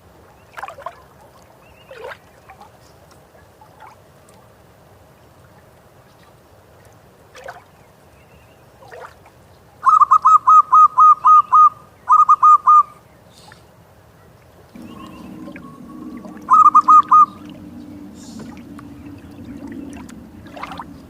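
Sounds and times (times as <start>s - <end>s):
dove cooing: 14.7s - 21.0s.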